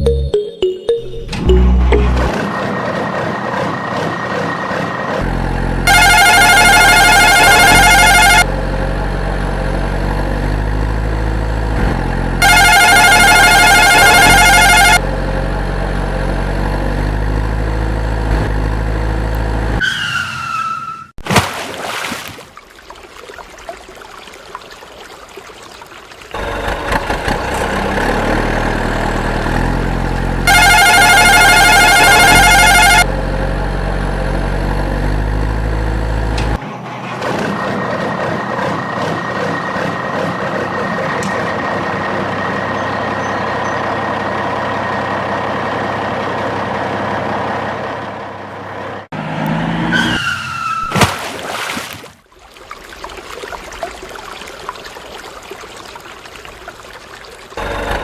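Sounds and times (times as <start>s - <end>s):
vehicle engine running: 1.5s - 19.8s, 26.4s - 49.4s, 57.6s - 58.0s
fast electronic trilling tone: 30.5s - 33.0s.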